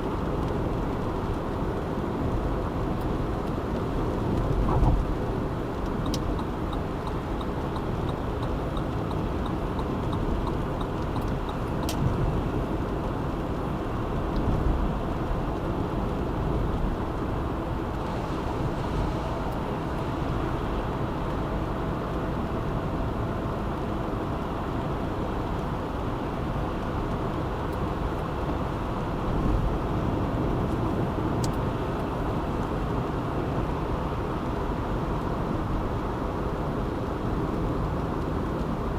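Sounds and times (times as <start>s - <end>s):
car road and engine noise: 0.0s - 38.9s.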